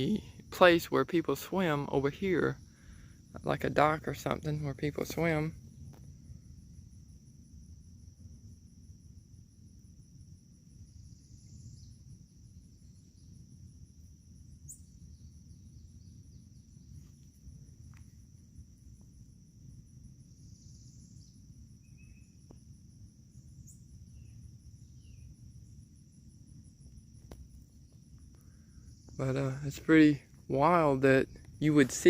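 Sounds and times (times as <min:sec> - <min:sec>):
crickets trilling: 0:00.0 - 0:32.0
faint chirps: 0:10.8 - 0:13.4, 0:20.2 - 0:22.6, 0:23.3 - 0:25.8, 0:27.2 - 0:32.0.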